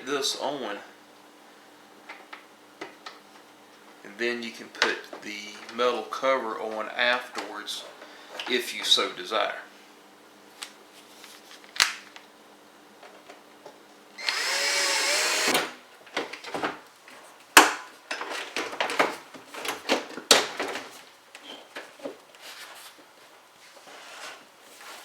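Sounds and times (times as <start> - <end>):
cordless drill motor whine: 14.2 - 15.8.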